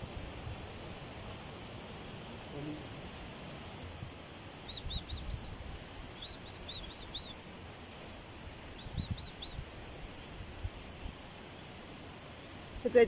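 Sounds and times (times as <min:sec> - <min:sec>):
bird chirping: 0:04.6 - 0:09.7.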